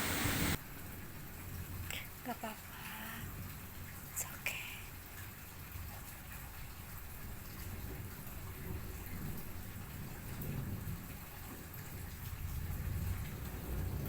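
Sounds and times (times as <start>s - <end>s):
heavy rain falling: 0.0s - 4.2s, 4.9s - 14.0s
low rumble of thunder: 7.0s - 14.0s.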